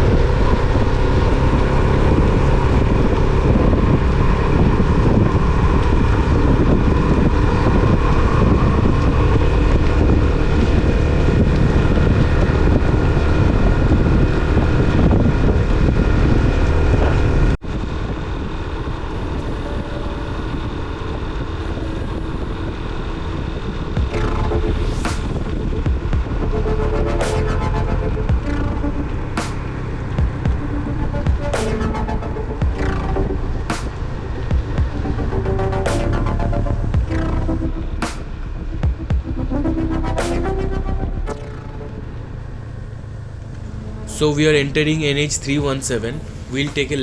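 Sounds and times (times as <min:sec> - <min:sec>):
wind rushing over microphone: 0:00.0 - 0:39.5
motorcycle engine running: 0:24.0 - 0:35.9.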